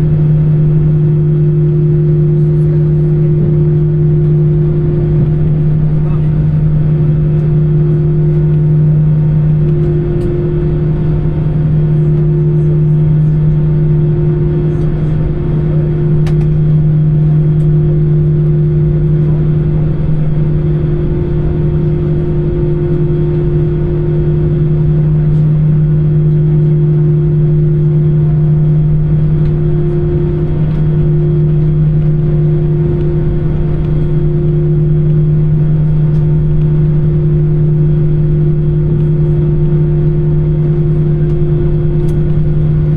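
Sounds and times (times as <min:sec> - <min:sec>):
jet cabin drone: 0:00.0 - 0:42.9.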